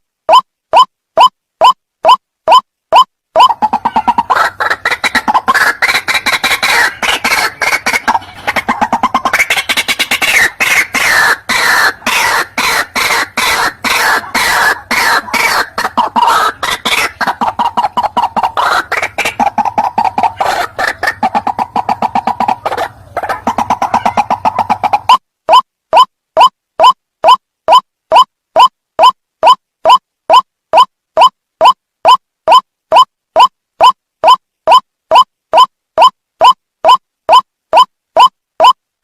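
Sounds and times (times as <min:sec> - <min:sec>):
waterhen harsh calls: 0:03.0 - 0:25.2.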